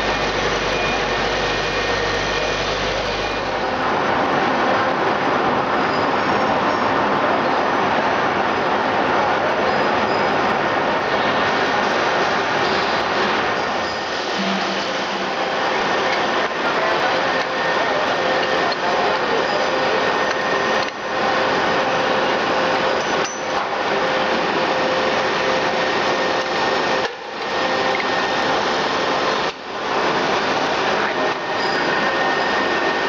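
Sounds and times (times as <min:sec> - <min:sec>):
machine running: 0:00.0 - 0:33.0.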